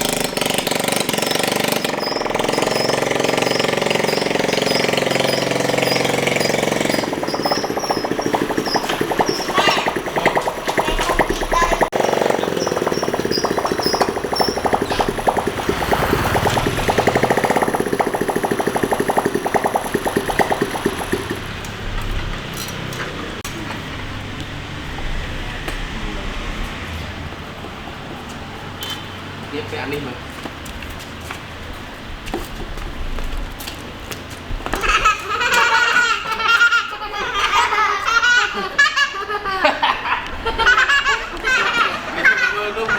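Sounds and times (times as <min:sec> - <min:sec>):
motorcycle engine running: 0:00.0 - 0:25.2
children laughing: 0:01.9 - 0:21.5, 0:34.6 - 0:42.9.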